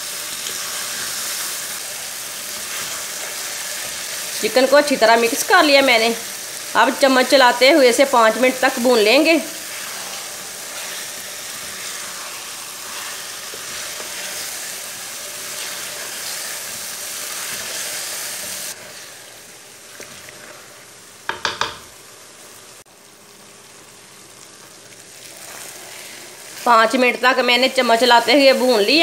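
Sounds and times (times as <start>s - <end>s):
chicken frying in oil: 0.0s - 29.0s
spoon stirring in pan: 8.9s - 21.8s.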